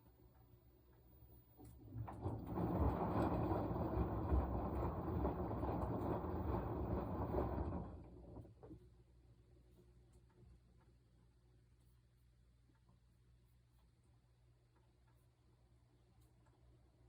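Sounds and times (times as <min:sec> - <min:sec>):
washing machine running: 0:01.3 - 0:09.1.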